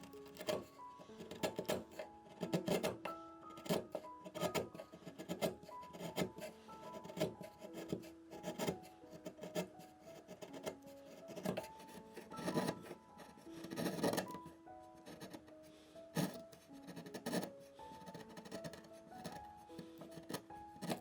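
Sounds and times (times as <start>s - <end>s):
hand tool rasping on wood: 0.0s - 15.5s, 16.1s - 21.0s
background music melody: 0.0s - 21.0s.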